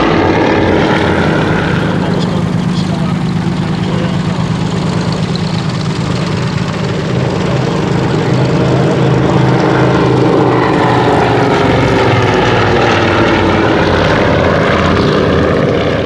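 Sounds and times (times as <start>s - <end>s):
aircraft engines in loud flypast: 0.0s - 16.0s.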